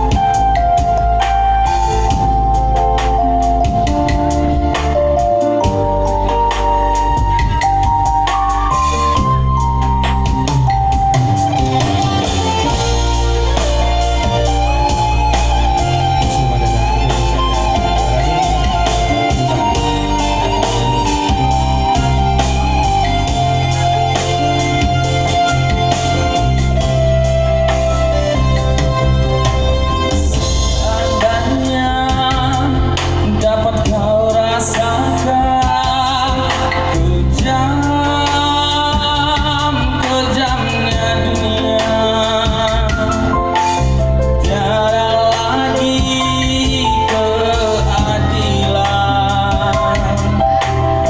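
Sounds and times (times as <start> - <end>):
bass: 0.0 - 51.0
drum strikes: 0.0 - 51.0
guitar lead melody: 0.0 - 51.0
instrumental backing with beat: 0.0 - 51.0
man singing: 11.8 - 27.0, 30.0 - 51.0.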